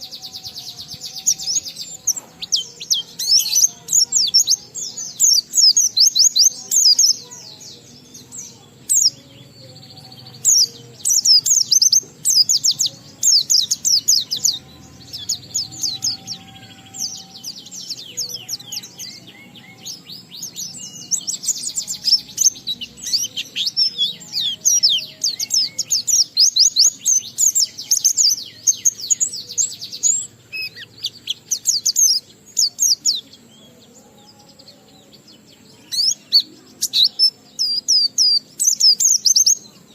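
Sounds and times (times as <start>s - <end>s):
white-eye bird singing: 0.0s - 39.9s.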